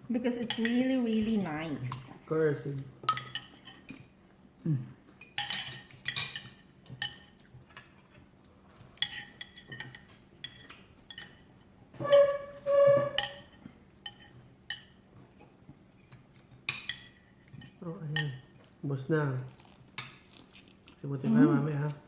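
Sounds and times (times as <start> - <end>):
cutlery clinking on plates: 0.4 - 1.5, 3.0 - 4.2, 5.2 - 18.8.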